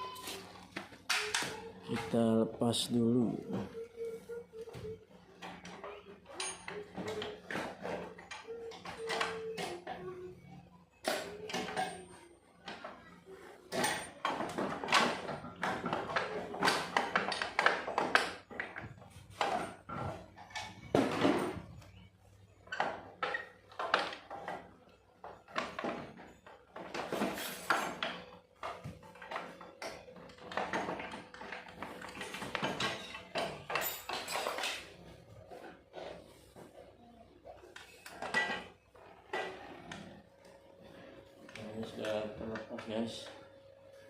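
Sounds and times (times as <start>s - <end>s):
hand tools clinking on metal bolts: 29.2s - 34.9s.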